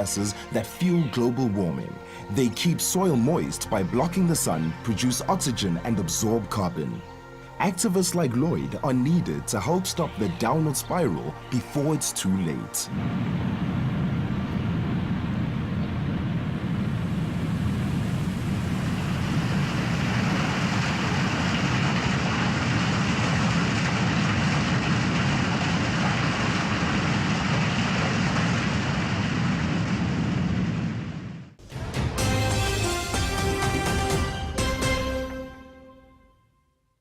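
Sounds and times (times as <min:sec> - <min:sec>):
steady rushing roar: 0:12.9 - 0:34.6.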